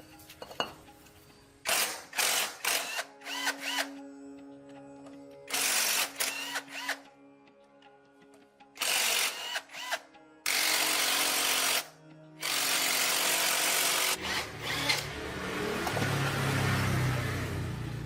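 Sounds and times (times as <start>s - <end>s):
background music: 0.0s - 18.0s
power tool bursts: 1.7s - 3.8s
low motor hum: 14.2s - 18.0s.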